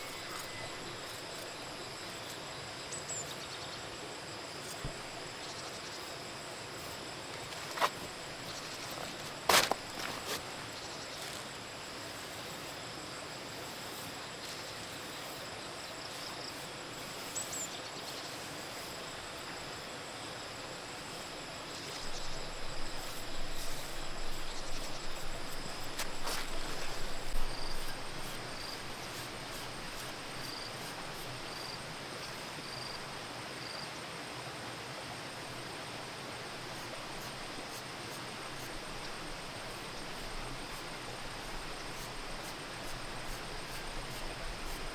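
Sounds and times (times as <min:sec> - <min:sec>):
insects chirring: 0:00.0 - 0:34.1, 0:35.2 - 0:44.9
handling noises: 0:07.3 - 0:11.4, 0:23.1 - 0:31.8.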